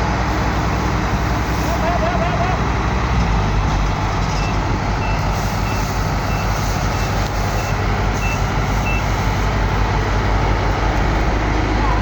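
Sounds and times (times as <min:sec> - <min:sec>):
diesel engine running: 0:00.0 - 0:12.0
reverse warning beeper: 0:07.5 - 0:09.2.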